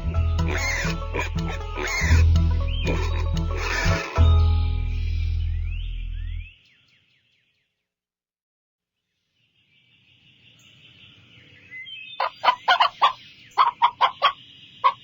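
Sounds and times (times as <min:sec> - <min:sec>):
chickens clucking: 0:00.4 - 0:04.3, 0:12.2 - 0:15.0.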